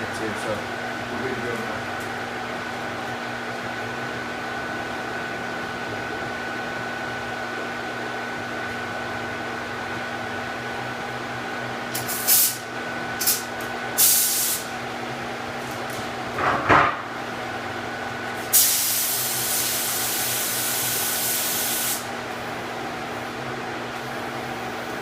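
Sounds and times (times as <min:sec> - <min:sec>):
steady machine hum: 0:00.0 - 0:25.0
paint spray gun hissing: 0:12.0 - 0:12.6, 0:14.0 - 0:14.7, 0:18.5 - 0:22.1.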